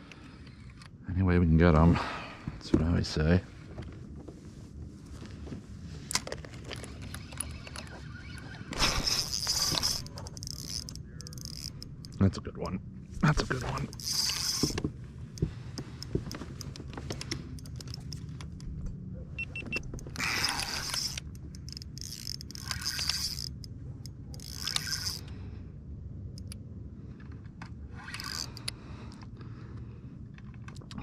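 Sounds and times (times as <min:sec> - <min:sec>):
fishing reel drag buzzing: 0:06.6 - 0:12.2, 0:13.8 - 0:14.8, 0:20.2 - 0:25.4, 0:27.9 - 0:28.7
fishing reel ticking: 0:06.6 - 0:12.2, 0:13.8 - 0:14.8, 0:20.2 - 0:25.3, 0:28.0 - 0:28.8.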